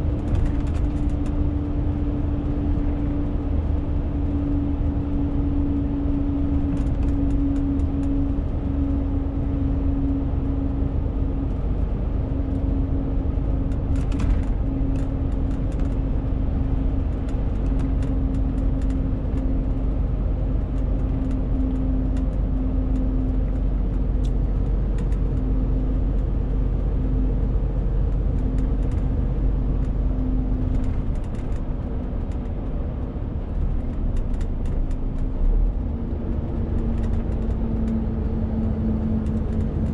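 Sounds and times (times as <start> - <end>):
faint clicks and rattles: 28.0 - 32.8, 33.4 - 39.9.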